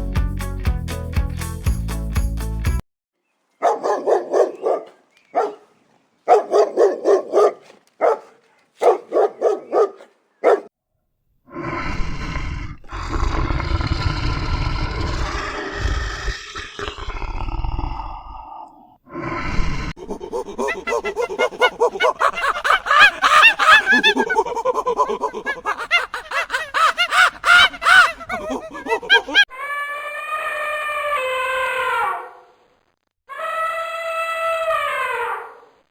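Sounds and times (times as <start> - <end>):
dog barking: 3.6 - 10.7, 20.2 - 29.4
deep animal call: 11.5 - 18.8, 19.4 - 32.3.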